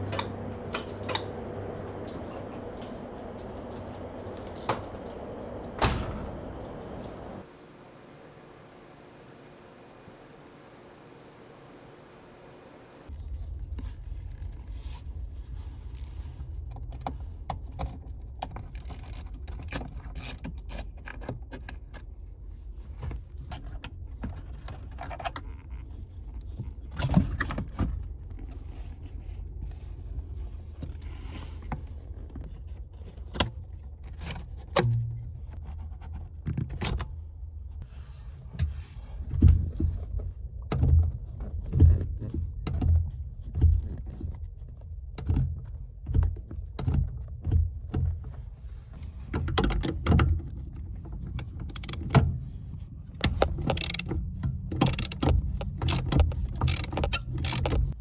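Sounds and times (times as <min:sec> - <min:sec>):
metal tools clinking: 0:16.0 - 0:16.2, 0:53.6 - 0:54.1, 0:54.8 - 0:57.9.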